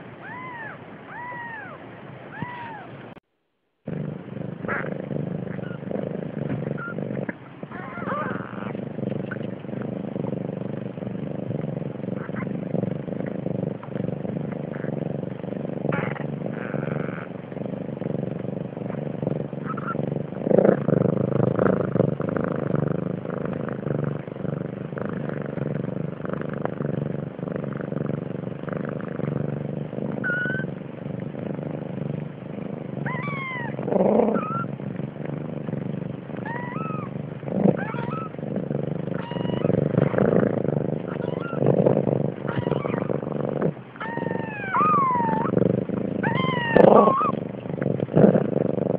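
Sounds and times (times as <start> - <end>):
cat meowing: 0.2 - 2.9, 30.2 - 30.7, 33.0 - 33.8, 36.4 - 37.1, 37.8 - 38.3, 39.2 - 39.7, 41.1 - 41.6, 42.5 - 43.0, 44.0 - 45.5, 46.2 - 47.4.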